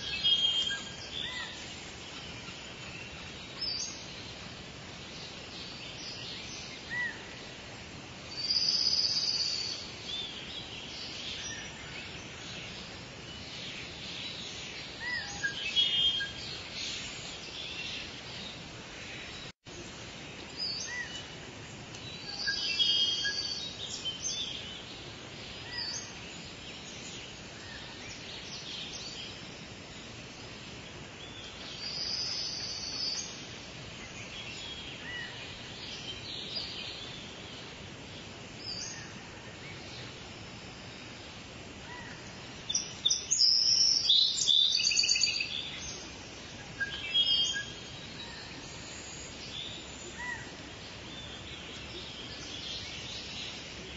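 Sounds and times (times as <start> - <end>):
outdoor background hiss: 0.0 - 53.9.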